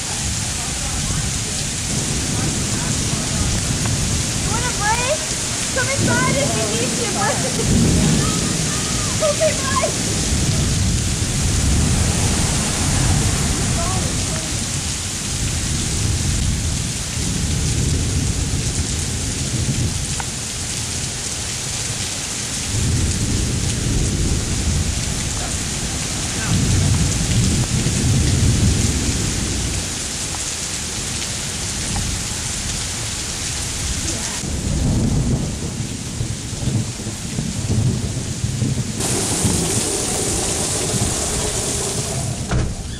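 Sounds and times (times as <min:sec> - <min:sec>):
low rumbles: 0:00.0 - 0:20.0, 0:38.6 - 0:42.9
heavy rain on flooded street: 0:00.0 - 0:42.9.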